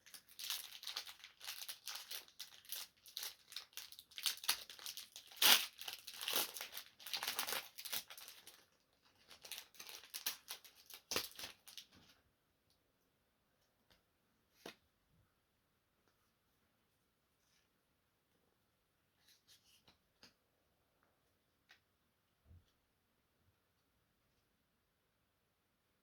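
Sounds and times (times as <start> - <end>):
foil wrapper tearing and crinkling: 0.0 - 11.9.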